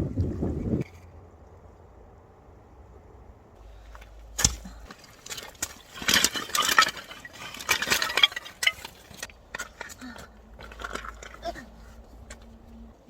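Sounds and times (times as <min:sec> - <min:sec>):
gear clattering and clicking: 0:03.8 - 0:12.7.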